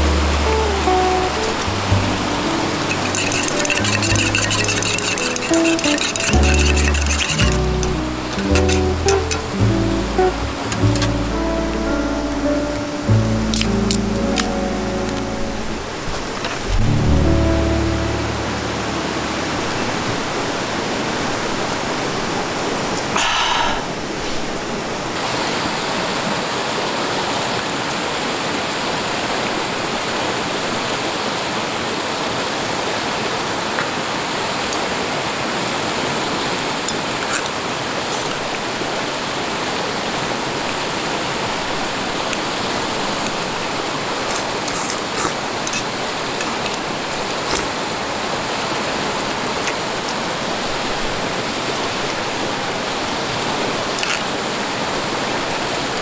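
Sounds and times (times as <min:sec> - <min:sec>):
river water rushing: 0:00.0 - 0:11.8.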